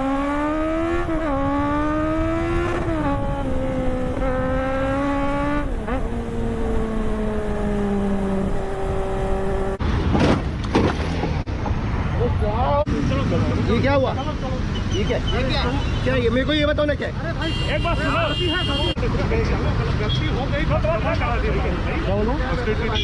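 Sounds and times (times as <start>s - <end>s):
motorcycle engine accelerating: 0.0s - 9.8s.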